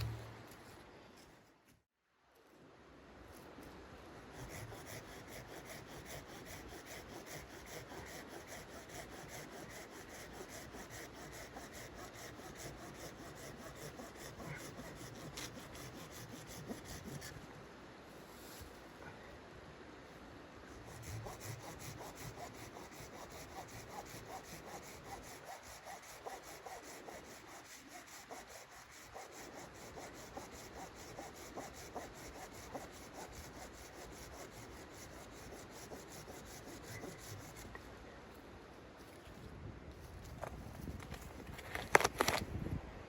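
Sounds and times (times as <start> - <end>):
hand saw cutting wood: 4.4 - 17.4, 20.8 - 37.7.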